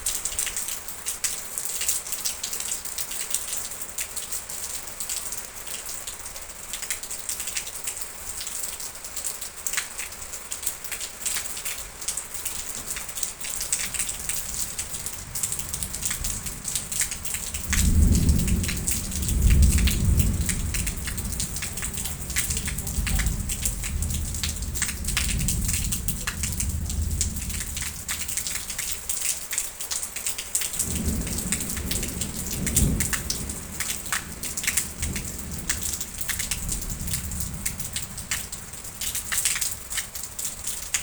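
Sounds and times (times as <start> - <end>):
rain pattering: 0.0 - 41.0
thunder rolling: 12.6 - 29.0, 30.8 - 39.1.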